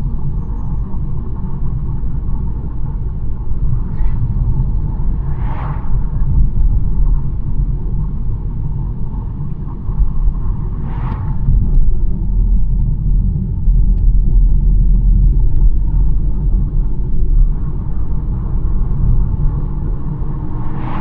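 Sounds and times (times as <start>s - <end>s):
car engine and tyre rumble: 0.0s - 21.0s
brief whoosh: 3.8s - 7.2s, 10.7s - 11.9s, 20.2s - 21.0s.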